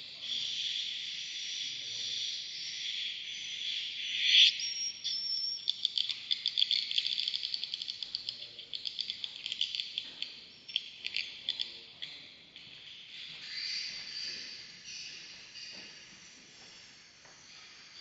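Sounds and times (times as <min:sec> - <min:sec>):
swiftlets chirping and clicking: 0:05.3 - 0:11.8.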